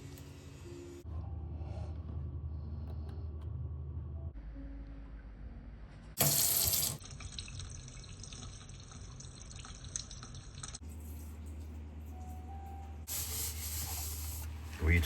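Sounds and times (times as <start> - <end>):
water running from a tap: 6.2 - 11.6.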